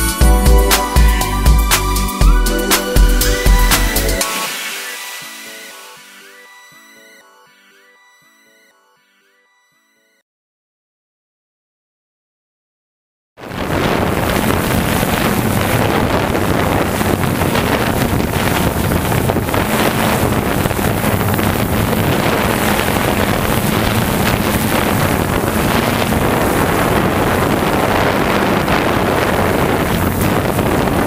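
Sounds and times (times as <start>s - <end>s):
low hum: 0.0s - 4.2s
drone propellers whirring: 0.0s - 7.3s, 14.1s - 31.0s
wind noise on microphone: 13.4s - 31.0s.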